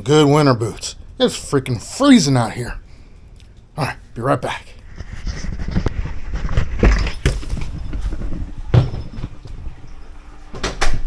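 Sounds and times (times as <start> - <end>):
footsteps: 3.4 - 10.6.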